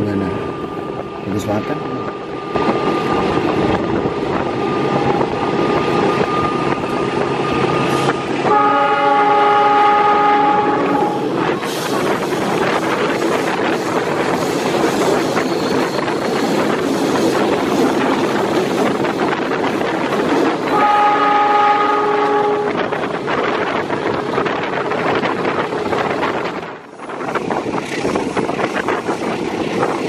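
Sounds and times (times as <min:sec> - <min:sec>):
train wheels rumbling on rails: 0:00.0 - 0:30.0
train horn blast: 0:08.4 - 0:11.3, 0:20.7 - 0:23.0.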